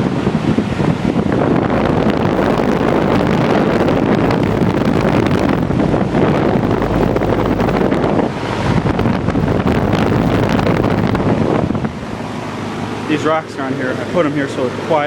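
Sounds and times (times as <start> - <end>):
wind buffeting microphone: 0.0 - 13.0
air conditioner fan rushing: 0.0 - 15.0
low hum: 1.3 - 12.4.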